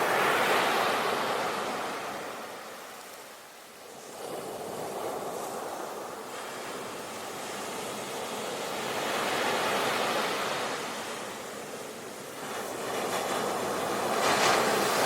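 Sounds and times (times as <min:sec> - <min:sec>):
sea waves washing in: 0:03.9 - 0:15.0.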